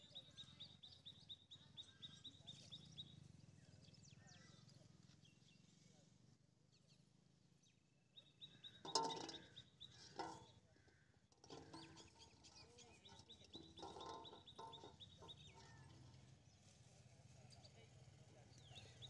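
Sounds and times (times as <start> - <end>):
low clucking bird calls: 8.2 - 16.6.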